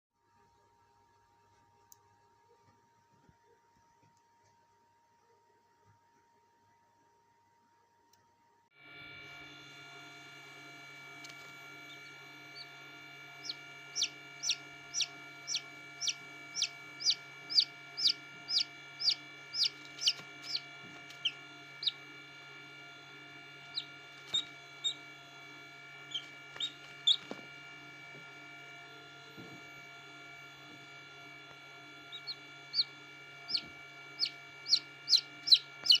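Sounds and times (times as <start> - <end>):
steady hum: 0.3 - 36.0
chicks peeping: 11.2 - 22.2, 23.5 - 25.2, 26.0 - 27.4, 32.0 - 36.0.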